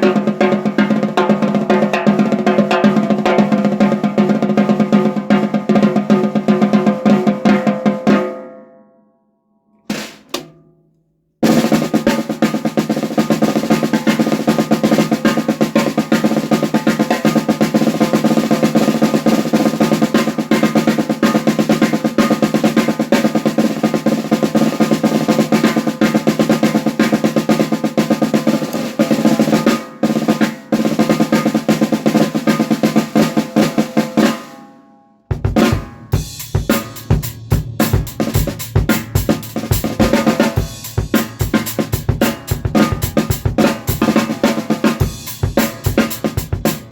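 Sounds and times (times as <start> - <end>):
drum-kit beat: 0.0 - 8.2, 9.9 - 10.6, 11.4 - 34.5, 35.3 - 46.9
snare drum roll: 0.0 - 8.4, 9.9 - 10.6, 11.4 - 34.6, 35.3 - 46.9
snare drum hits: 9.9 - 10.6.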